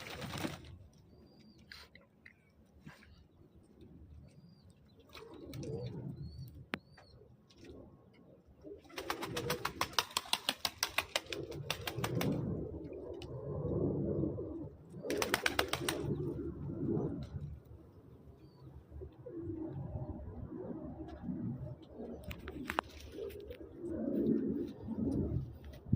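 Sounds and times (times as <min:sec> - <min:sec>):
wings flapping in water: 0:00.0 - 0:00.8, 0:08.8 - 0:12.5, 0:15.1 - 0:16.3
pigeons cooing: 0:08.5 - 0:17.4.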